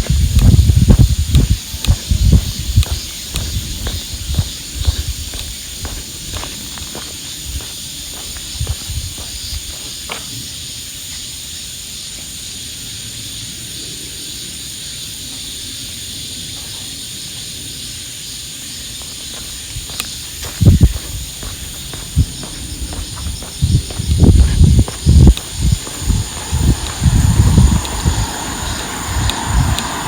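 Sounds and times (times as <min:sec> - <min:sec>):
soft footsteps on a path: 0:00.0 - 0:10.4, 0:18.8 - 0:30.0
high-pitched insect chorus: 0:00.0 - 0:30.0.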